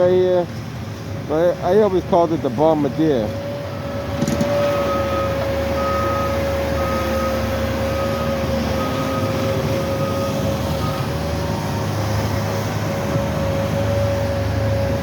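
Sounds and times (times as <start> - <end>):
diesel engine with whine: 0.0 - 15.0
reversing alarm beeping: 3.7 - 12.4.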